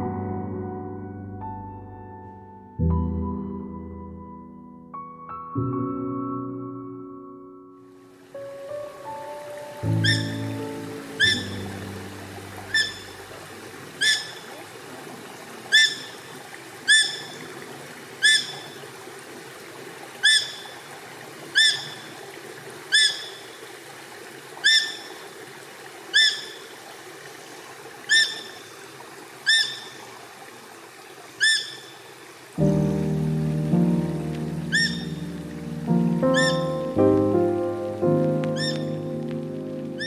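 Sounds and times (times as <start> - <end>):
faint woodland ambience: 7.9 - 40.0
bird call sharp upward-flicking: 9.9 - 11.9, 12.6 - 13.3, 14.0 - 14.6, 15.7 - 16.3, 16.9 - 17.5, 18.2 - 18.8, 20.2 - 20.8, 21.6 - 22.1, 22.9 - 23.6, 24.6 - 25.2, 26.1 - 26.7, 28.1 - 28.7, 29.5 - 30.0, 31.4 - 32.0, 34.3 - 35.4, 36.3 - 37.3, 38.2 - 39.4.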